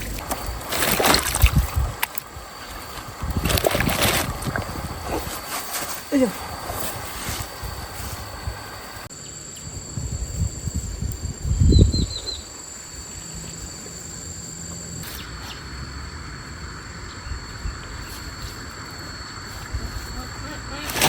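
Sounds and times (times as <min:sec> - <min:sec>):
low thumps and rumbles: 0:00.0 - 0:09.0
insects droning: 0:00.0 - 0:21.0.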